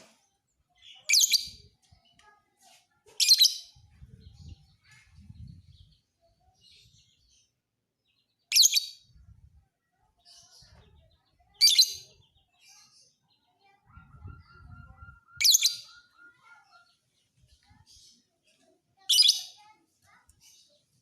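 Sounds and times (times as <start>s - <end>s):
lovebird chirping: 13.6s - 17.0s.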